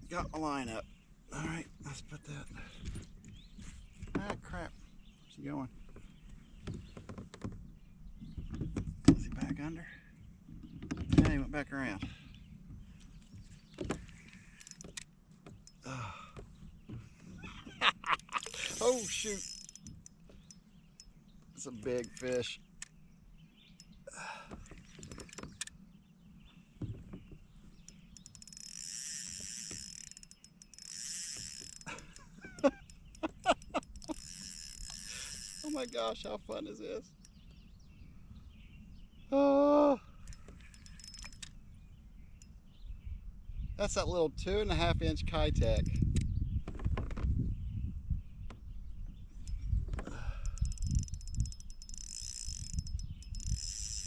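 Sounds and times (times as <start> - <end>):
fishing reel buzzing: 14.1 - 15.0, 18.1 - 21.1, 21.8 - 22.6, 25.0 - 25.7, 27.8 - 37.4, 40.2 - 41.6, 50.2 - 54.0
scattered clicks: 21.7 - 23.0.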